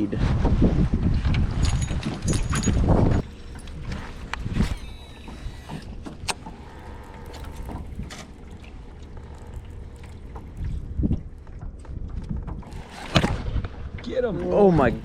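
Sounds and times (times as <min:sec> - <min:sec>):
low rumble and hiss on water: 0:03.2 - 0:15.0.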